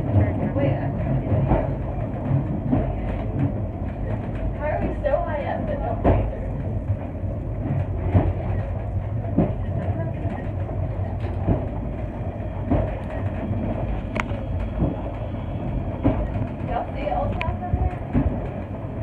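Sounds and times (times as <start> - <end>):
funicular car rumbling on rails: 0.0 - 19.0.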